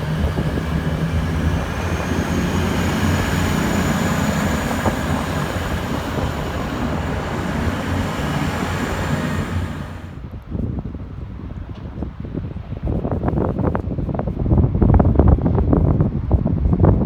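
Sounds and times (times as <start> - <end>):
train rumbling by: 0.0 - 10.3.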